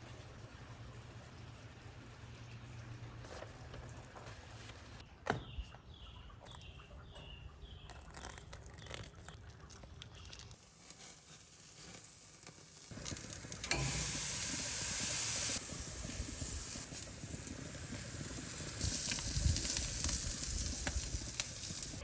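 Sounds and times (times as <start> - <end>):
burger patties sizzling on grill: 10.6 - 22.0.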